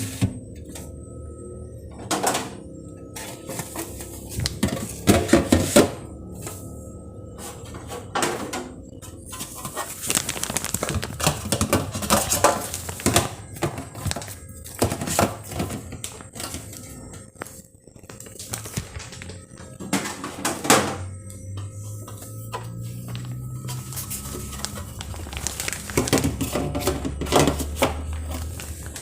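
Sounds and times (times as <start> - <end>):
background music: 0.0 - 29.0
dishes and containers clattering: 1.9 - 6.1, 7.4 - 29.0.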